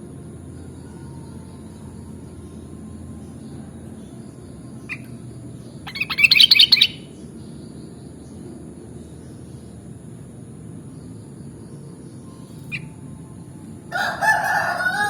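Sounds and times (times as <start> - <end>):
bird singing: 0.0 - 15.0.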